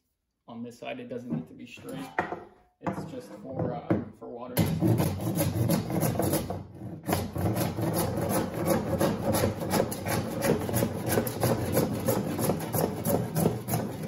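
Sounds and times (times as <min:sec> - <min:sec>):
hand saw cutting plastic pipe: 0:04.6 - 0:14.0.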